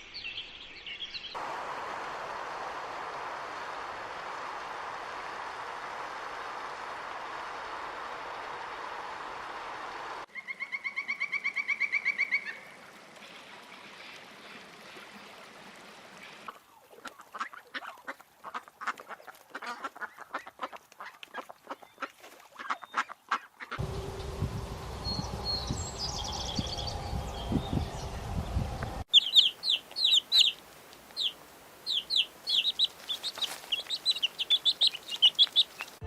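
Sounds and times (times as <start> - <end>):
low rumble: 23.8 - 29.1
high bird chirps: 23.9 - 30.6, 31.2 - 36.0
bird trilling: 29.1 - 30.6, 31.2 - 36.0
rapid sharp bird calls: 29.1 - 36.0.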